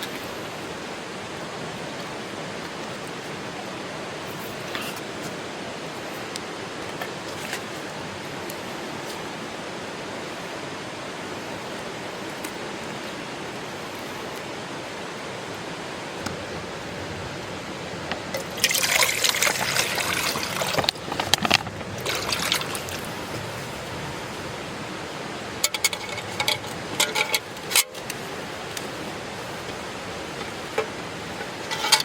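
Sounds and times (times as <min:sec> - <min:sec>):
steady background hiss: 0:00.0 - 0:32.0
liquid pouring and trickling: 0:18.3 - 0:23.4
liquid splashes: 0:18.3 - 0:23.6.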